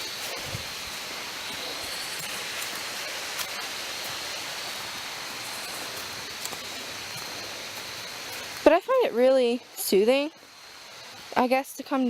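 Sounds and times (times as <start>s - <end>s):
water rushing over small waterfall: 0.0s - 8.8s.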